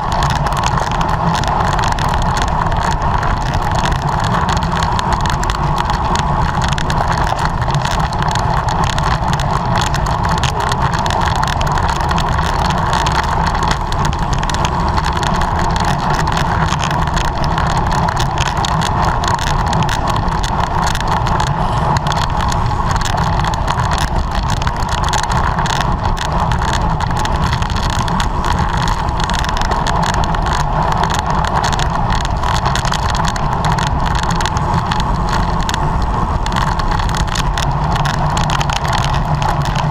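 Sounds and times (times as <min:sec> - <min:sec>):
bicycle road noise: 0:00.0 - 0:39.9
wind buffeting microphone: 0:00.0 - 0:39.9
wind rushing: 0:12.8 - 0:26.2.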